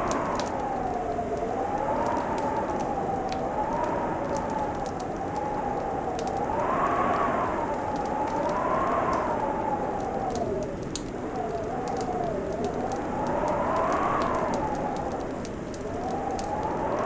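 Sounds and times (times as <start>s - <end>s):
fireplace crackling and popping: 7.5s - 17.0s.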